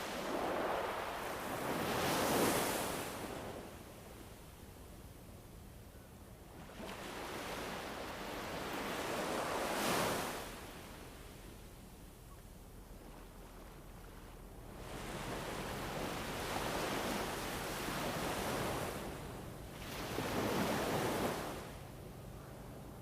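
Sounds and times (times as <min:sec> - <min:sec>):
wind gusts: 0:00.0 - 0:04.2.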